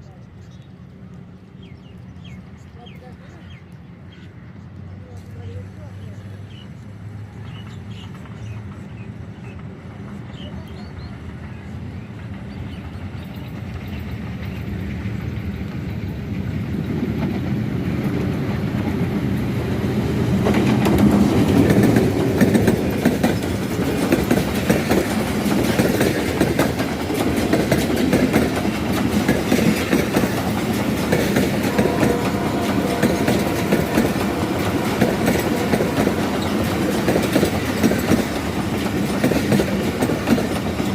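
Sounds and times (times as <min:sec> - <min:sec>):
passenger train passing: 0:00.0 - 0:40.9
wheels clacking over rail joints: 0:11.2 - 0:40.9.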